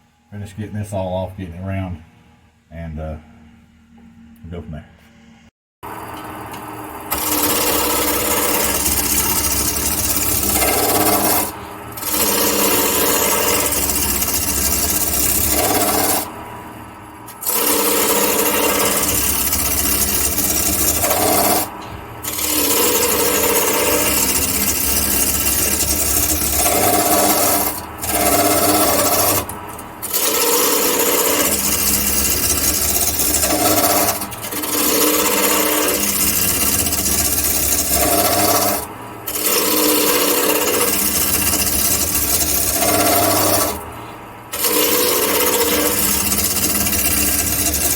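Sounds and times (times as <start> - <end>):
lathe humming: 5.8 - 47.9
turning tool scraping wood: 7.1 - 47.9.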